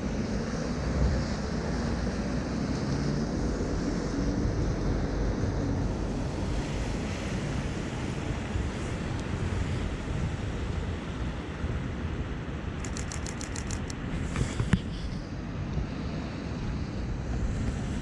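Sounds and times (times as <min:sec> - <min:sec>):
street ambience: 0:00.0 - 0:18.0
wind rumbling on microphone: 0:00.0 - 0:18.0
camera shutter clicking rapidly: 0:12.8 - 0:14.0.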